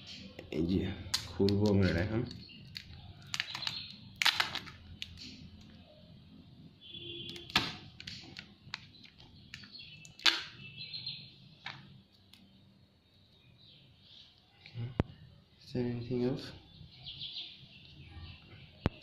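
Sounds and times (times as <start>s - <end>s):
birds chirping: 0.1s - 4.2s, 4.8s - 19.0s
packaging clicks and knocks: 1.1s - 5.3s.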